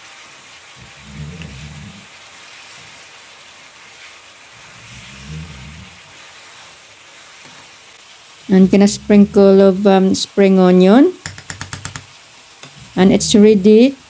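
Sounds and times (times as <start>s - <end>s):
stir fry sizzling in pan: 0.0s - 14.0s.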